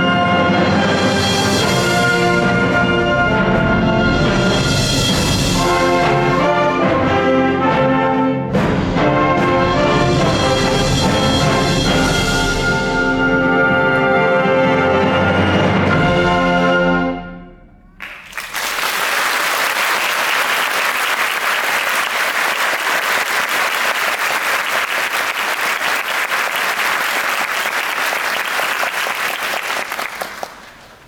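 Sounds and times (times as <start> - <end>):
audience applauding: 18.0 - 31.0.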